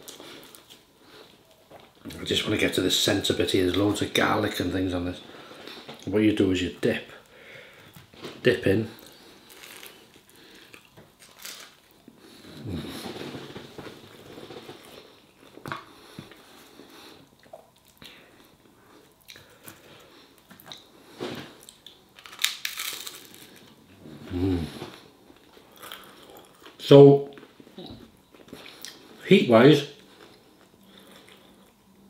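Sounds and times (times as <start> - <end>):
man chewing crunchy bread: 9.0 - 26.8, 30.0 - 32.0
closed-mouth hum: 12.1 - 21.7, 23.7 - 32.0.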